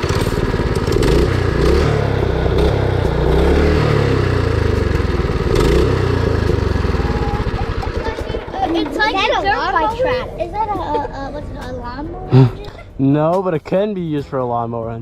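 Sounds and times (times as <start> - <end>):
small engine revving: 0.0 - 9.1.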